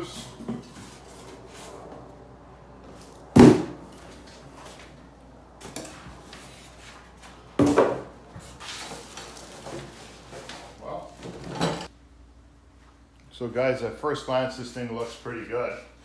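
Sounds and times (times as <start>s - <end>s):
loud knocks: 3.4s - 3.8s.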